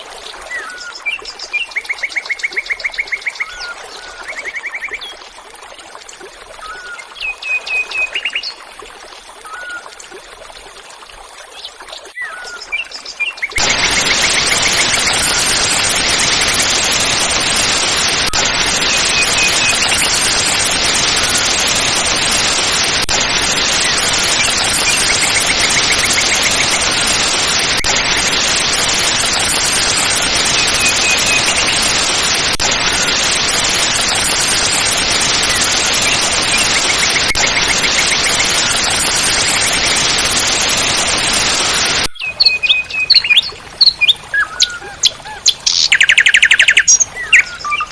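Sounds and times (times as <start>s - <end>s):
waterfall rushing water: 13.6s - 42.1s.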